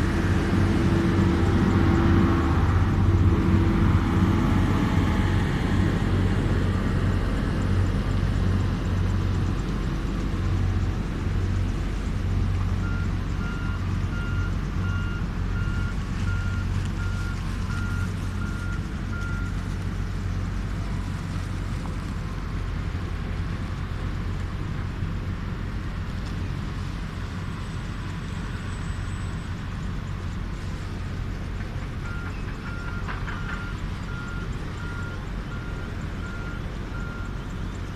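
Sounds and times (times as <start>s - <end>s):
low engine rumble: 0.0s - 37.9s
reversing alarm beeping: 12.8s - 19.6s, 32.0s - 37.4s.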